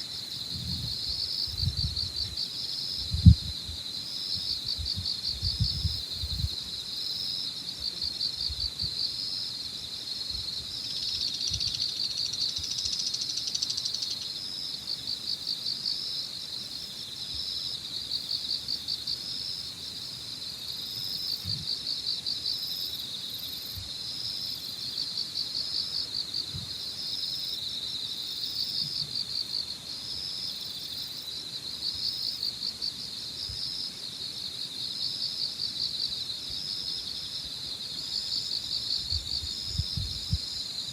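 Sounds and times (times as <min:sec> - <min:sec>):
crickets and insects trilling: 0:00.0 - 0:40.9
wind buffeting microphone: 0:00.4 - 0:02.4, 0:03.0 - 0:03.8, 0:04.4 - 0:06.8, 0:39.0 - 0:40.5.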